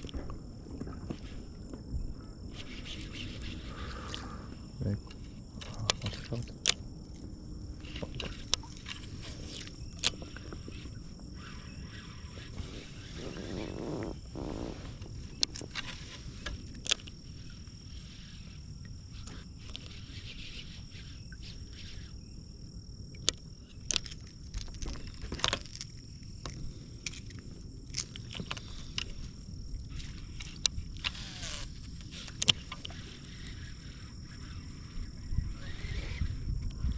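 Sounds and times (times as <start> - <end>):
insects chirring: 0.0 - 36.9
fishing gear clicks and knocks: 5.1 - 11.0, 15.3 - 17.2, 23.2 - 33.6.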